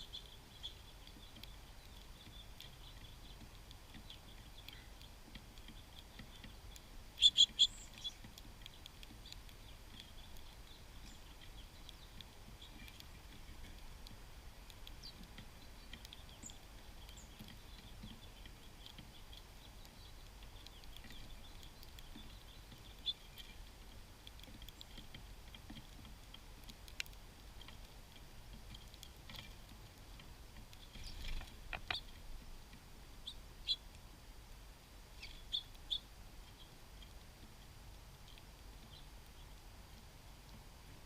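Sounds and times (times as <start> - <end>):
faint background hiss: 0.0 - 41.0
songbirds chirping: 0.0 - 41.0
sharp clicks and taps: 30.0 - 32.1.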